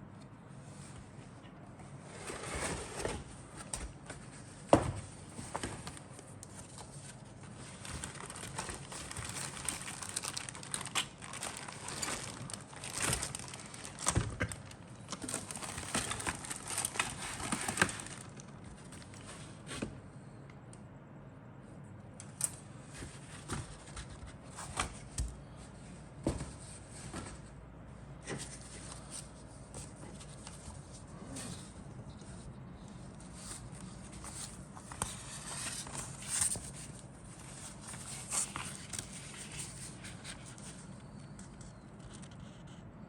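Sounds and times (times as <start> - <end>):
plastic bags crinkling: 7.5 - 19.2.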